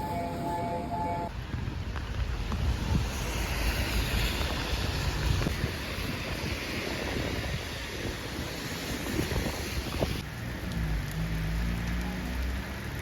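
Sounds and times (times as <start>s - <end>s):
wind buffeting microphone: 1.3s - 10.3s.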